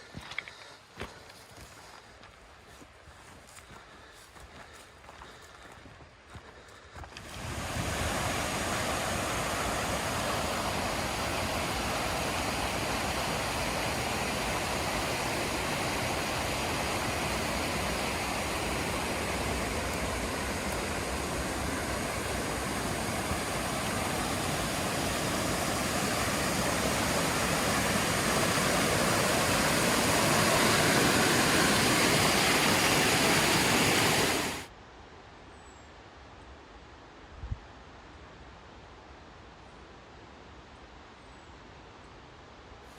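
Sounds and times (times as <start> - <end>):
mountain stream rushing: 6.5 - 34.7.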